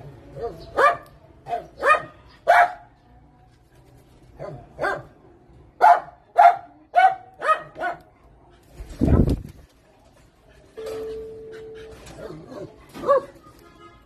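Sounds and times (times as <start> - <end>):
dog barking: 0.4 - 3.0, 4.4 - 5.2, 5.8 - 8.2, 12.2 - 13.4.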